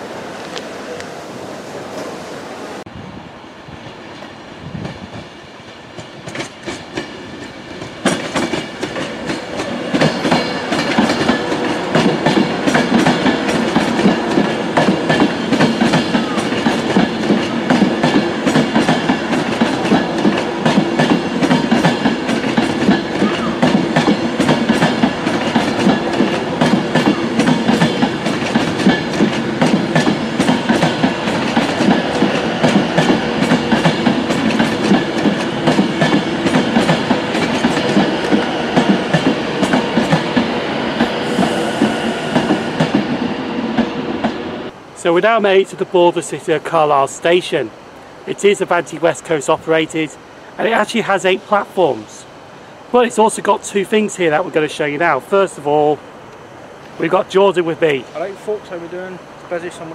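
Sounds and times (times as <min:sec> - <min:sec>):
train rumble: 0:00.0 - 0:45.1
train wheels clacking: 0:04.2 - 0:44.5.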